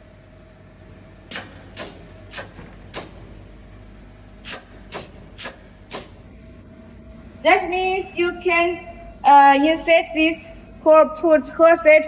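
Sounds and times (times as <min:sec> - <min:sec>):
faint steady hum: 0:00.0 - 0:12.0
pneumatic clamp air hisses: 0:01.3 - 0:03.3, 0:04.4 - 0:06.2.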